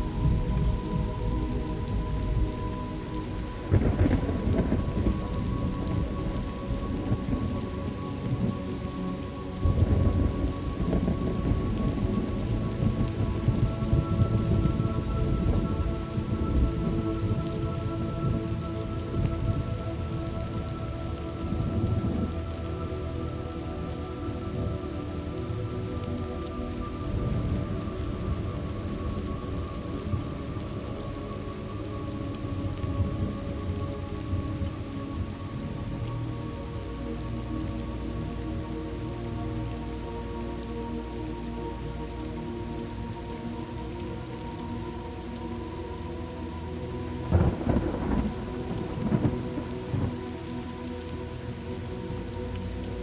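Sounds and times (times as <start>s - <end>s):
steady rain: 0.0s - 53.0s
rolling thunder: 3.7s - 7.6s, 9.6s - 18.4s, 47.3s - 50.3s.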